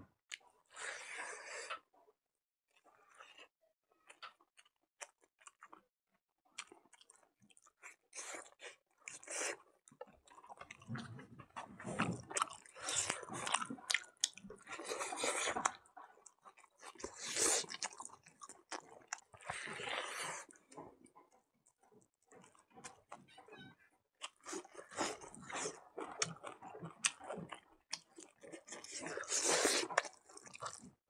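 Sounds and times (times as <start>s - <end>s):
person chewing food: 2.7s - 5.8s, 6.5s - 23.3s, 24.2s - 31.0s.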